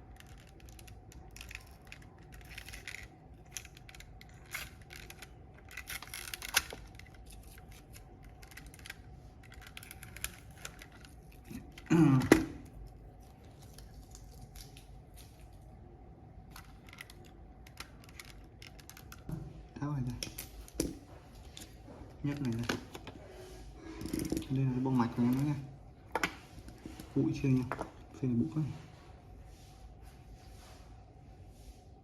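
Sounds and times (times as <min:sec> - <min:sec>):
rubbing and scraping plastic: 0:00.0 - 0:11.9
faint steady hum: 0:00.0 - 0:32.0.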